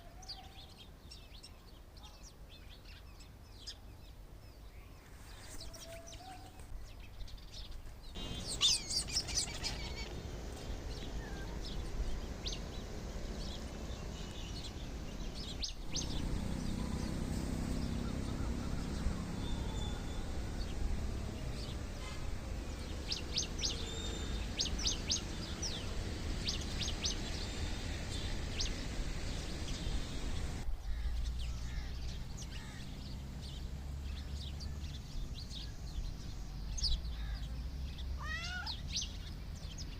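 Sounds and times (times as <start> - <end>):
small birds chirping: 0.0 - 39.9
low background rumble: 8.2 - 32.8.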